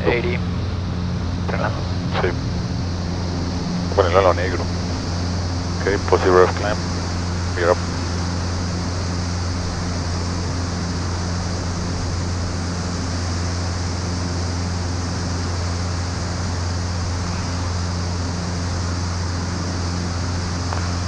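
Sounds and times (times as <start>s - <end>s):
aircraft engines droning: 0.0s - 21.0s
airflow hiss: 1.5s - 21.0s.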